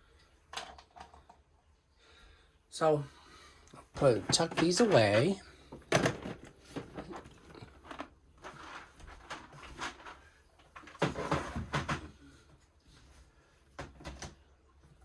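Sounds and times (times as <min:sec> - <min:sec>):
plastic containers clicking and knocking: 0:00.5 - 0:01.4, 0:04.0 - 0:12.2
crinkly rustling: 0:04.0 - 0:12.0.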